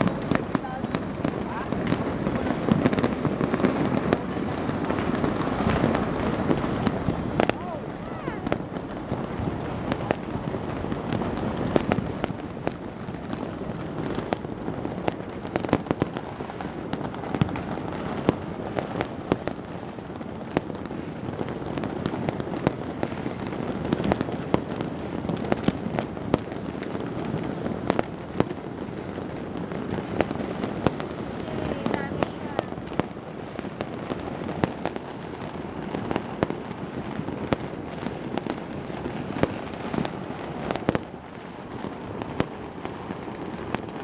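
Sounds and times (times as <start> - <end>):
fireworks bangs and cracks: 0.0 - 44.0
low rumble of fireworks: 0.0 - 44.0.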